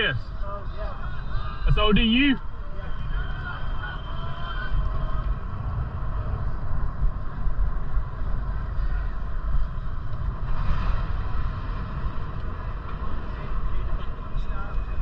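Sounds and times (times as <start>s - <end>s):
bicycle rolling noise: 2.4s - 15.0s
wind buffeting microphone: 2.4s - 15.0s.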